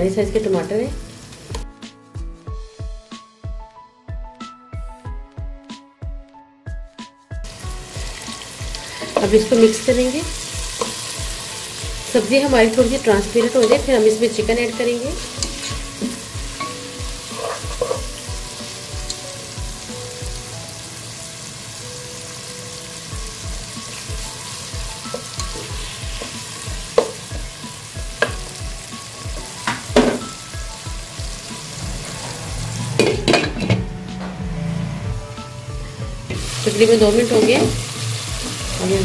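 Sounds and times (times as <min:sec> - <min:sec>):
vegetables sizzling in hot oil: 0:00.0 - 0:01.6, 0:07.4 - 0:33.4, 0:36.2 - 0:39.0.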